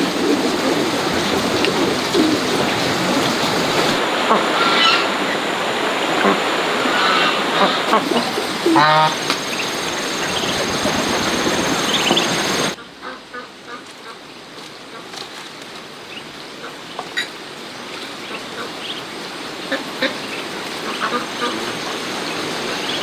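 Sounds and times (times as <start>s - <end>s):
ducks quacking: 0.0s - 15.3s, 18.2s - 19.0s, 19.6s - 23.0s
rushing water: 0.0s - 23.0s.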